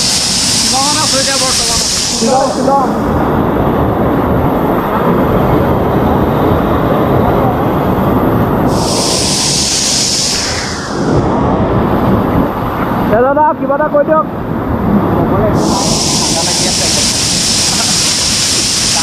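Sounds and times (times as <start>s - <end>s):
high hiss: 0.0s - 2.9s, 8.7s - 11.4s, 15.6s - 19.0s
waterfall roaring: 0.0s - 14.2s, 14.8s - 19.0s.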